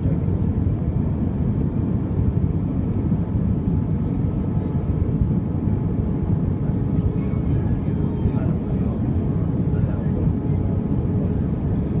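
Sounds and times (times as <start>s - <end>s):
airliner cabin jet engine rumble: 0.0s - 12.0s.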